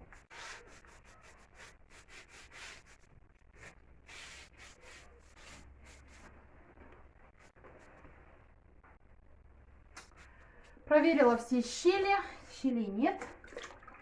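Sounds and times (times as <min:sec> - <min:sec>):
rubbing against hard surface: 0:00.0 - 0:08.4.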